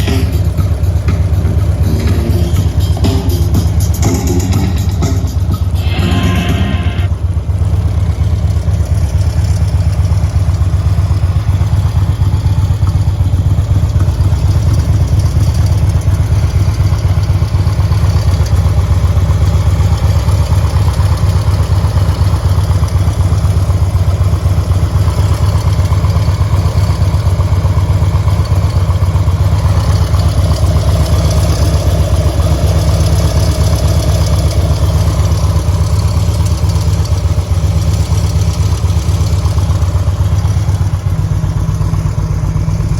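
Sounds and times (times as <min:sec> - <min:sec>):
motorcycle engine idling: 0:00.0 - 0:42.9.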